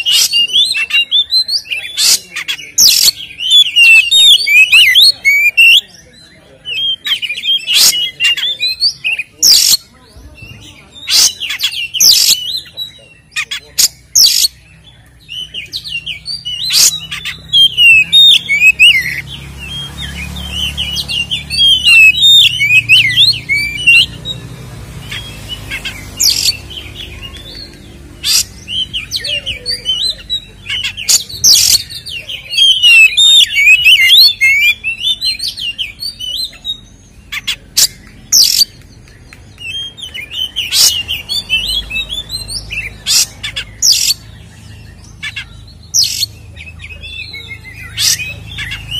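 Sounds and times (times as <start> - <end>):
bird singing warbling song: 0.0 - 48.9.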